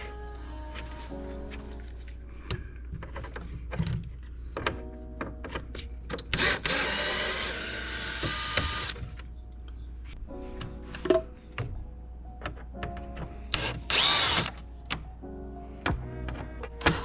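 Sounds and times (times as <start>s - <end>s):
handheld power driver running: 6.3s - 9.0s, 13.5s - 14.6s.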